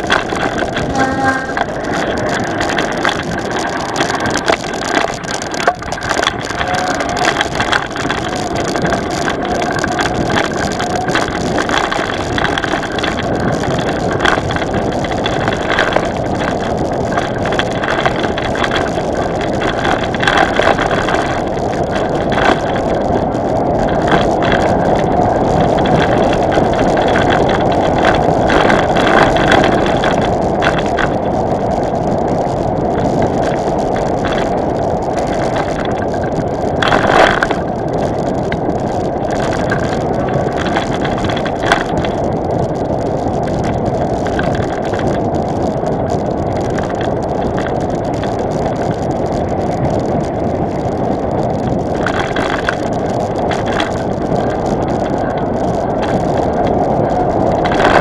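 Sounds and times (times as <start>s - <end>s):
knocks and rattles: 0.0s - 45.7s
vehicle rumbling over rough ground: 0.0s - 58.0s.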